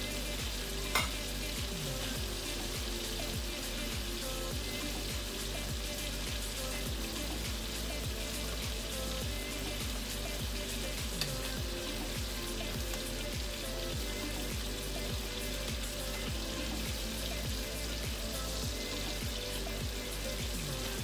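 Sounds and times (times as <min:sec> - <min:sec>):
meat sizzling in a frying pan: 0:00.0 - 0:21.0.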